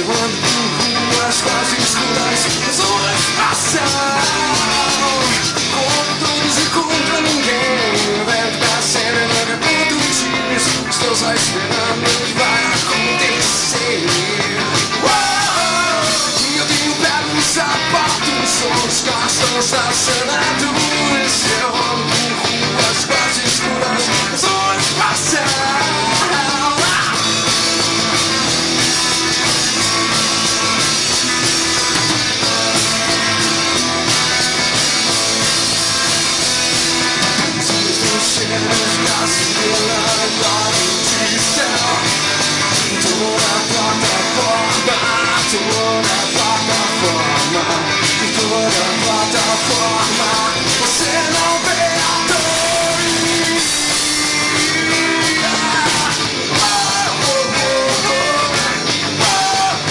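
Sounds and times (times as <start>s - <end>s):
instrumental rock music: 0.0s - 59.9s.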